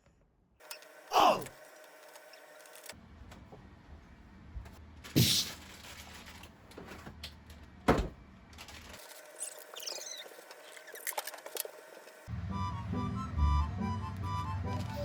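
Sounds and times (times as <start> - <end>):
objects clicking and rustling: 5.4 - 7.7, 8.5 - 11.8.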